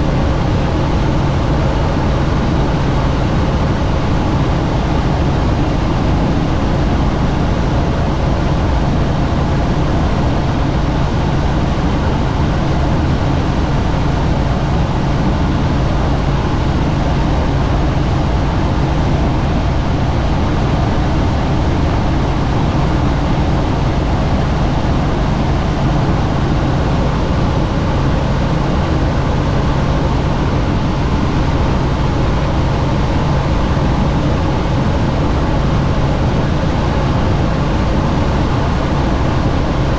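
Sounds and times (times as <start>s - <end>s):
helicopter rotor and engine noise: 0.0s - 39.9s.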